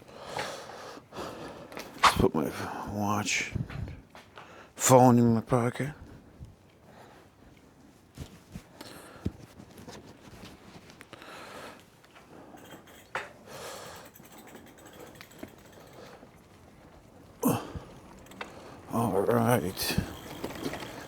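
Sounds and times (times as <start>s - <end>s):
rustling: 7.4s - 11.6s
handling clicks and knocks: 12.0s - 21.0s.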